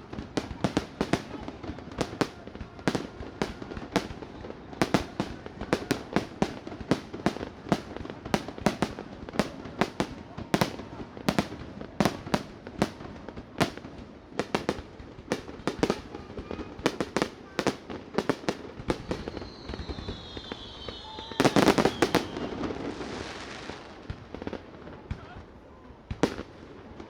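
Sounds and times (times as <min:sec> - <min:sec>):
fireworks bangs: 0:00.0 - 0:25.5, 0:26.1 - 0:27.0
firework crackling hiss: 0:14.5 - 0:24.1
falling firework whistles: 0:18.8 - 0:23.8.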